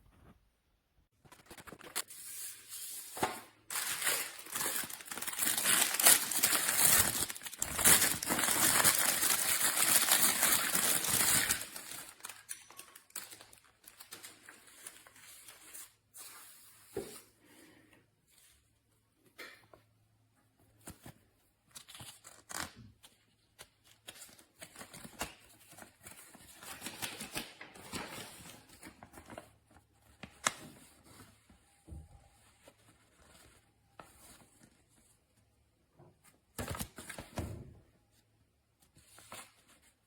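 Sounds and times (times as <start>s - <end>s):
packaging crinkling and rustling: 3.1s - 15.2s.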